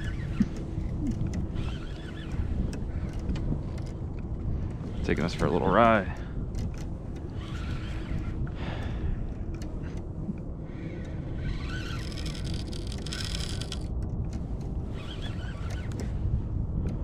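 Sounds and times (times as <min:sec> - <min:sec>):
small clicks: 0:00.0 - 0:05.5, 0:06.1 - 0:16.2
water moving along kayak hull: 0:00.0 - 0:16.4
wind rumbling on microphone: 0:00.0 - 0:17.0.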